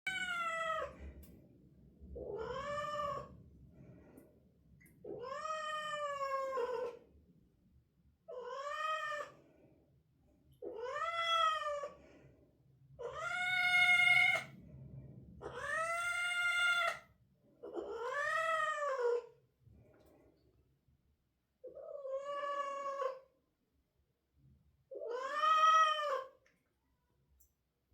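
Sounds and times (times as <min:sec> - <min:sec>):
cat yowling: 0:13.0 - 0:14.5, 0:17.8 - 0:19.3, 0:25.0 - 0:26.3.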